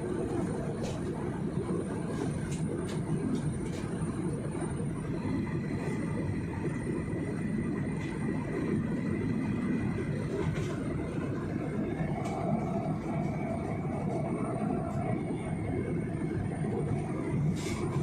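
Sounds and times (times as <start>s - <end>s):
jet engines and airflow rumble: 0.0s - 18.0s.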